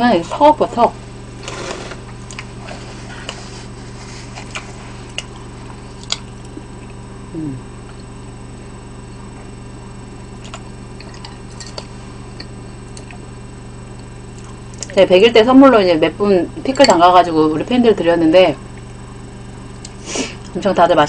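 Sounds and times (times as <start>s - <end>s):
steady low hum: 0.0s - 21.0s
person chewing food: 1.4s - 7.1s, 10.3s - 13.3s.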